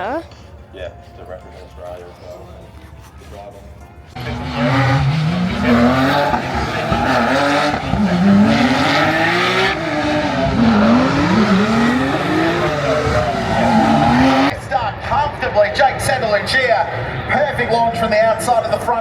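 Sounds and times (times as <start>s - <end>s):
racing car engines revving: 4.1s - 19.0s.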